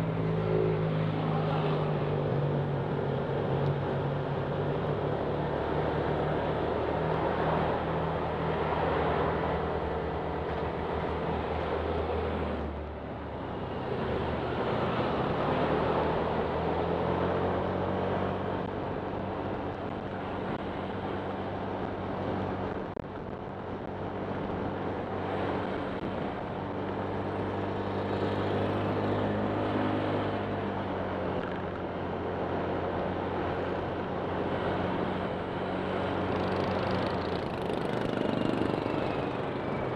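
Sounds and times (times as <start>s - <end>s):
steady rushing noise: 0.0s - 39.9s
scooter engine running: 36.4s - 39.5s.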